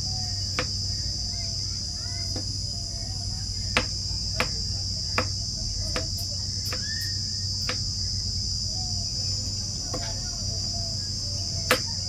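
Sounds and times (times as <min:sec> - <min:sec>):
insects droning: 0:00.0 - 0:12.0
sharp clicks: 0:11.7 - 0:12.0.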